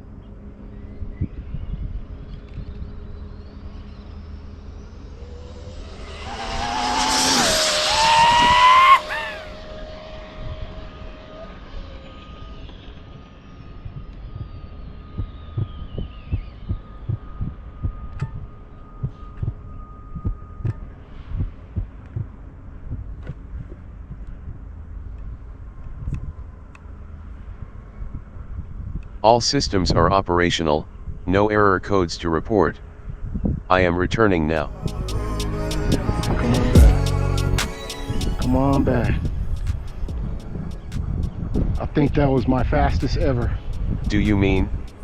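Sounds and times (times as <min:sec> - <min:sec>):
electric rc car motor whine: 0:02.8 - 0:16.9.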